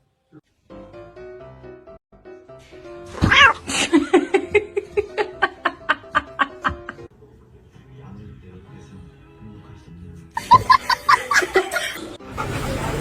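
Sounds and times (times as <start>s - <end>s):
background music: 0.5s - 13.0s
short yelps: 3.1s - 3.6s
cat meowing: 3.2s - 3.7s.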